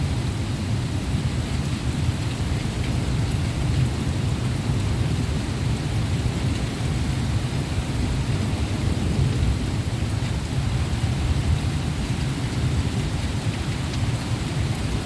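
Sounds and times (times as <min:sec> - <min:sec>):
heavy rain: 0:00.0 - 0:15.0
low thunder rumble: 0:08.0 - 0:13.6.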